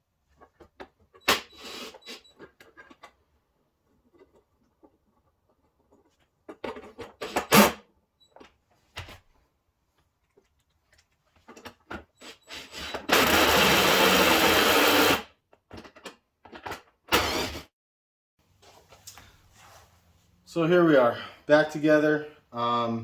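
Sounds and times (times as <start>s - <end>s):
power driver running: 13.0s - 15.2s
parts clicking and knocking: 13.0s - 16.9s.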